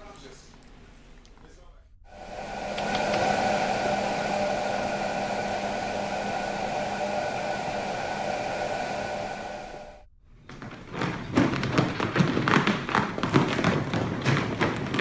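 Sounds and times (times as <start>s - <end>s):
whirring hum with held tones: 2.0s - 10.2s.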